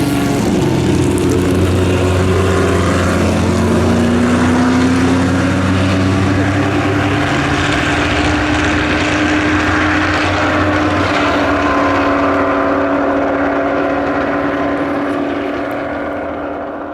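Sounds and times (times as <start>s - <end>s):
racing car engine at high revs: 0.0s - 16.9s.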